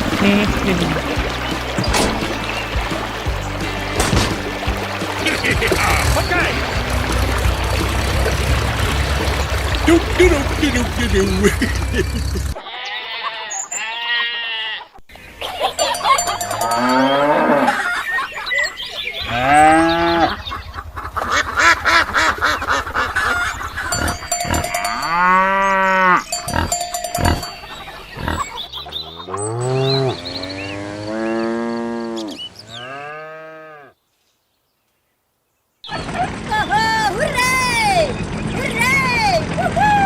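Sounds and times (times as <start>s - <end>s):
farm animal calls: 5.2s - 34.0s.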